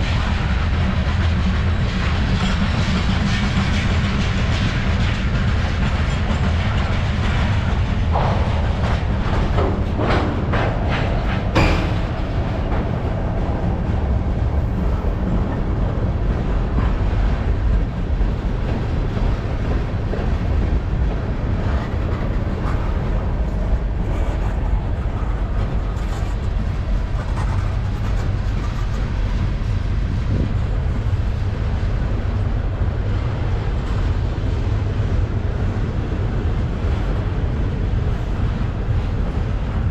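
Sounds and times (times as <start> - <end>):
wheel clacks over rail joints: 0.0 - 30.5
freight train wheels rumbling: 0.0 - 39.9.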